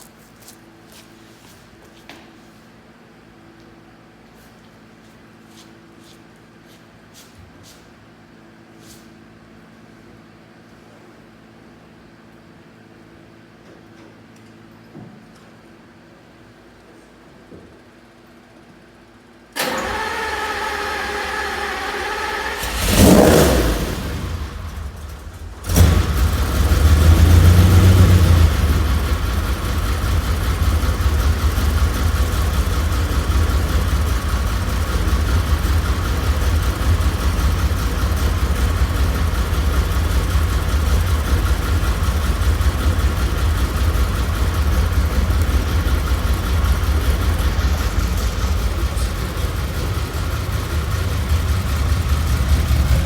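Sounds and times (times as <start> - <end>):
car engine starting and revving: 19.6 - 53.0.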